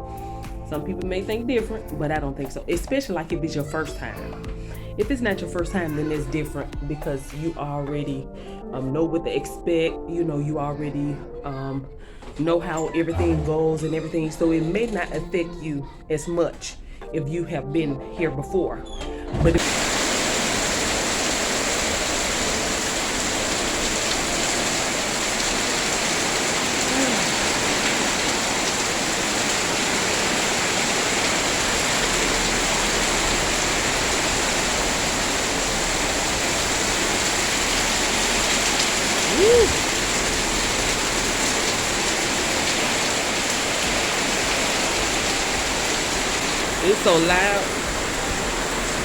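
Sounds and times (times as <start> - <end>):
heavy rain pouring: 13.1 - 13.8, 19.6 - 49.0.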